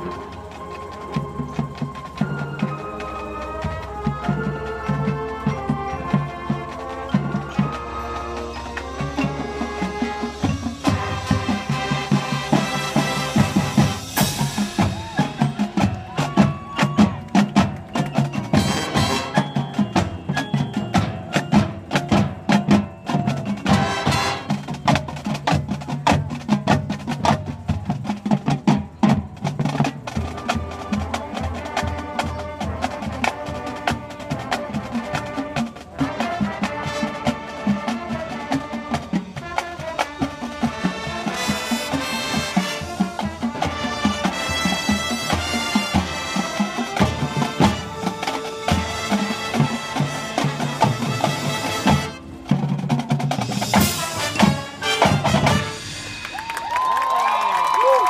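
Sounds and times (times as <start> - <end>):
marching band playing: 0.0 - 58.0
drum and mallet hits: 3.6 - 26.9, 46.9 - 56.8.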